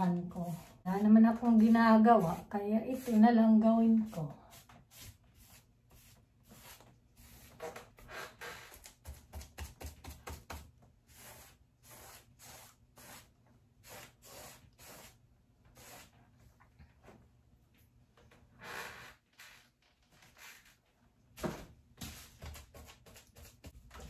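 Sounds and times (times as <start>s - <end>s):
paintbrush swishing over wood: 0.2s - 7.6s, 11.1s - 16.1s.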